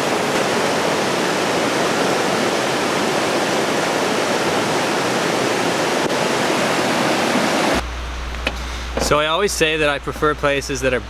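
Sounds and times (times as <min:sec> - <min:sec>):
waterfall rushing: 0:00.0 - 0:07.8
heavy rain falling: 0:00.0 - 0:10.4.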